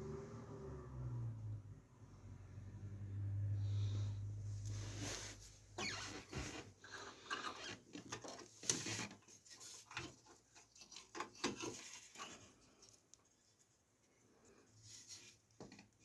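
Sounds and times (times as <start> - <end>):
hands handling cables and parts: 5.8 - 13.8.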